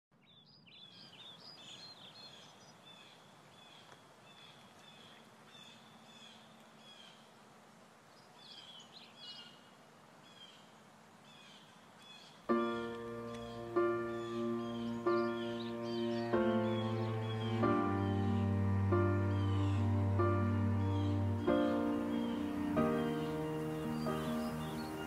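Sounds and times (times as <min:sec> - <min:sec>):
soft steady hiss: 0:00.5 - 0:25.0
birds chirping and whistling: 0:12.6 - 0:25.0.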